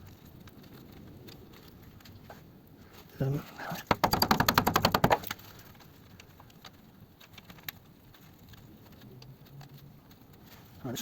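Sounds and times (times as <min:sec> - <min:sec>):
hand tools ticking and knocking: 0:03.6 - 0:10.4.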